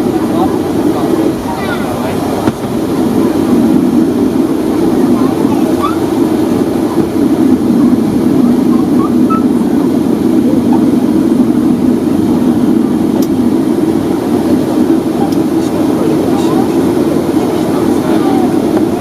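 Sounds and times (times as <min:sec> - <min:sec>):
faint voices: 0:00.0 - 0:13.2, 0:13.8 - 0:19.0
airplane cabin rumble: 0:00.0 - 0:19.0.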